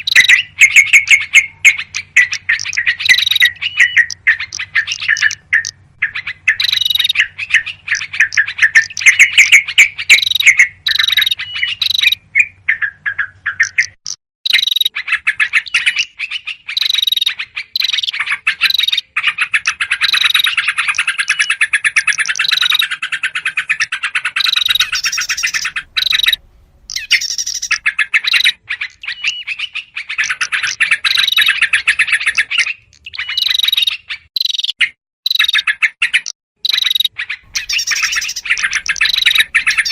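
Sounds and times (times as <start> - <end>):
bulbuls chattering: 0.0 - 9.5, 24.4 - 29.1, 37.5 - 39.9
small birds calling: 0.0 - 39.9.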